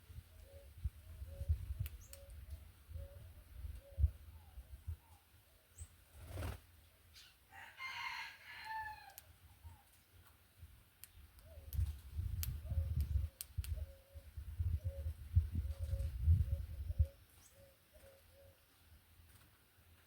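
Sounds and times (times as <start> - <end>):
rooster crowing: 7.5 - 9.2.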